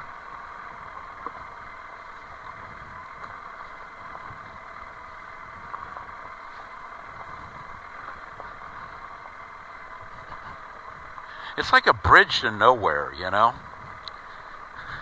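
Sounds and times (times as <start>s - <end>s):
light ticks: 14.0s - 15.0s.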